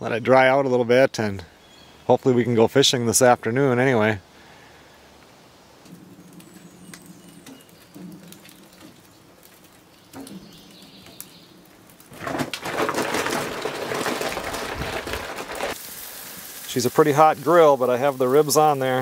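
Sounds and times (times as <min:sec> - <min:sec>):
loud crackling hiss: 0:15.4 - 0:19.0.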